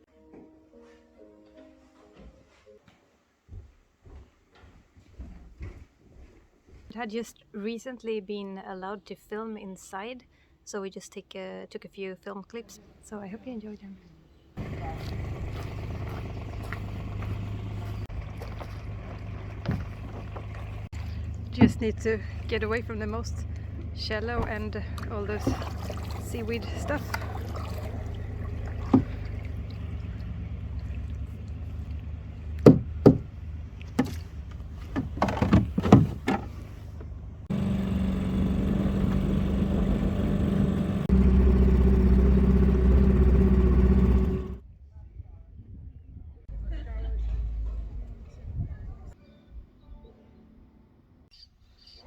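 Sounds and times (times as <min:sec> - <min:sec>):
boat engine humming: 0:14.6 - 0:44.6
knocks and clatters: 0:32.6 - 0:41.0.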